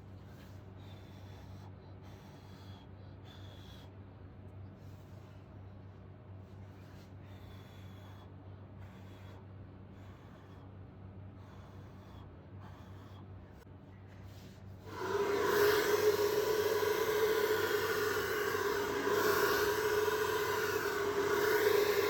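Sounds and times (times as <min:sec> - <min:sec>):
soft breathing puffs: 0:00.0 - 0:22.0
blower motor rushing air: 0:14.8 - 0:22.0
steady motor whine: 0:14.8 - 0:22.0.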